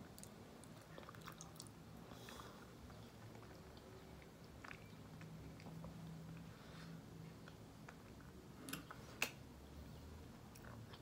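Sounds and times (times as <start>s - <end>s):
faint chewing: 0.0s - 9.4s, 10.2s - 11.0s
faint low hum: 0.0s - 11.0s.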